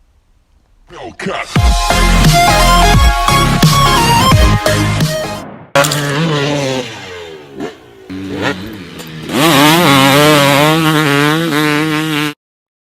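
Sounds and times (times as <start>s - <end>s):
motorcycle engine revving: 5.8s - 12.4s.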